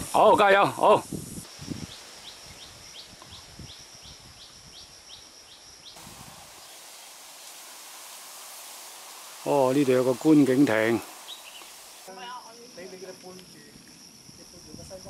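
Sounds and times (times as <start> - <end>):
outdoor hiss: 0.0 - 15.0
bird repeating high call: 11.2 - 12.1.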